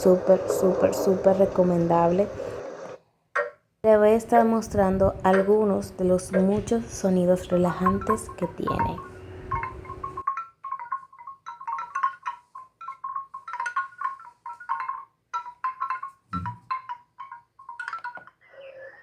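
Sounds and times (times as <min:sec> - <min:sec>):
mallet-instrument lullaby from speaker: 0:07.2 - 0:19.0.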